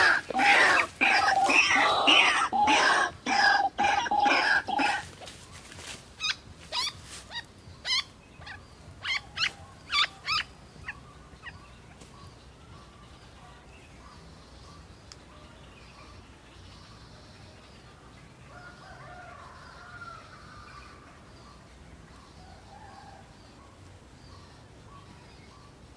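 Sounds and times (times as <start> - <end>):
waterhen calling: 0.0 - 5.3.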